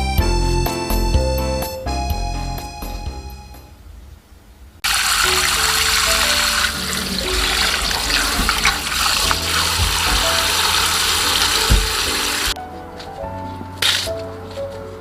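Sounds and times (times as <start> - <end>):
background music: 0.0 - 3.7, 5.0 - 15.0
water running from tap: 4.8 - 12.6.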